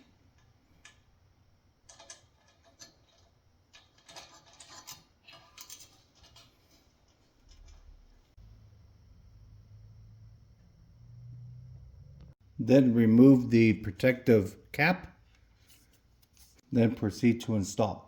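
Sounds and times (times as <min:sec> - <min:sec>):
metal parts clicking and clinking: 0:01.8 - 0:08.2.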